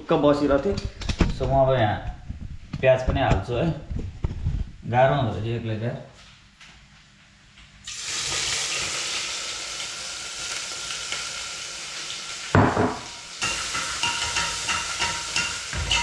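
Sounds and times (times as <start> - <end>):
onions sizzling in hot oil: 7.8 - 16.0
stirring in a pan: 13.4 - 16.0.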